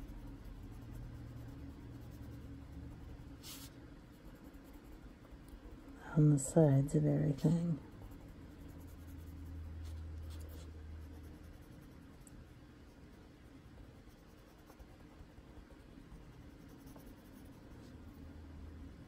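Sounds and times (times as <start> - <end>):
colored pencil scratching on paper: 0.0 - 5.0, 5.8 - 12.3, 13.9 - 15.1, 16.2 - 18.3
low hum: 0.0 - 19.0.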